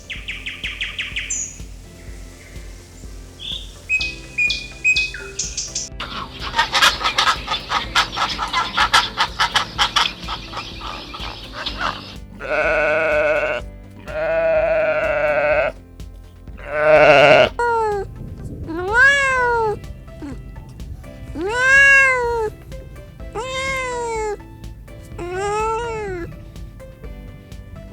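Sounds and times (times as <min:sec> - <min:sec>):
rapid pulsed chattering call: 0:00.0 - 0:13.6
goat or sheep bleating: 0:11.6 - 0:15.8, 0:16.6 - 0:18.1, 0:18.7 - 0:20.5, 0:21.1 - 0:22.6, 0:23.2 - 0:24.4, 0:25.0 - 0:26.5
cat meowing: 0:12.4 - 0:15.7, 0:16.6 - 0:18.1, 0:18.7 - 0:20.5, 0:21.2 - 0:22.6, 0:23.2 - 0:26.4.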